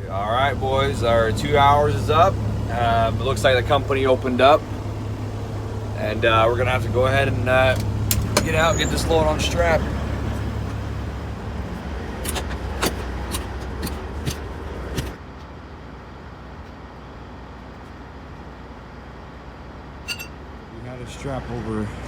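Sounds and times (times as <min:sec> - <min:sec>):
truck engine idling: 0:00.0 - 0:22.0
sharp clicks and knocks: 0:07.7 - 0:08.5, 0:12.2 - 0:15.2.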